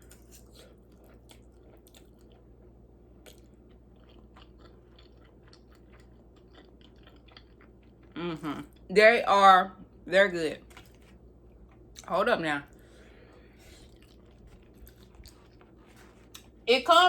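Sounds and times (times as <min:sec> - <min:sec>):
chewing noodles with mouth clicks: 0:00.0 - 0:08.2, 0:12.7 - 0:16.6.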